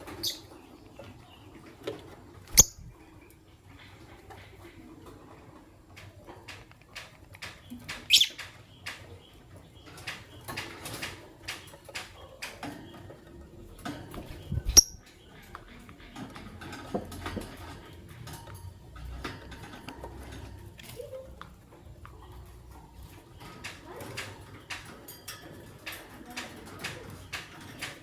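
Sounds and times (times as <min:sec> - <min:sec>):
lovebirds chirping: 0:00.0 - 0:05.0, 0:07.4 - 0:16.8
small clicks and taps: 0:05.9 - 0:13.0.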